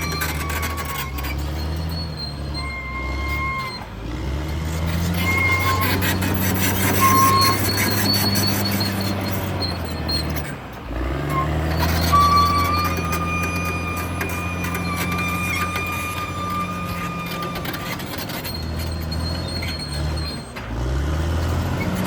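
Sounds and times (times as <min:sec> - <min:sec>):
steel tracks clattering: 0:00.0 - 0:02.2, 0:10.5 - 0:22.0
high-pitched squeals: 0:00.0 - 0:20.7
bulldozer diesel engine under load: 0:00.0 - 0:22.0.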